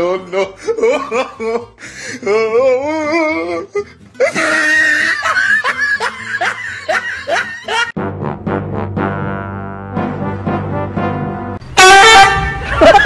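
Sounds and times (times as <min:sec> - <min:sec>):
person laughing hard: 0:00.0 - 0:02.4, 0:03.0 - 0:07.9, 0:12.0 - 0:13.0.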